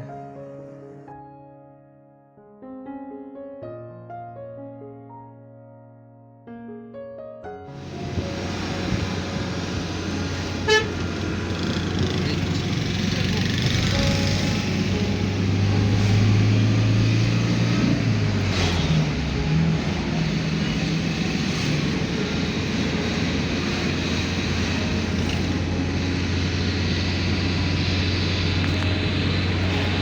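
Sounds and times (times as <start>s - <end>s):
road noise: 7.7s - 30.0s
vehicle engine hum: 7.8s - 30.0s.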